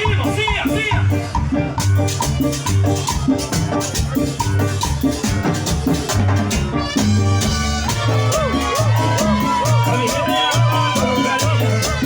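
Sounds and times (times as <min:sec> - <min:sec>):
live dance band playing: 0:00.0 - 0:12.0
maracas shaking: 0:07.5 - 0:12.0.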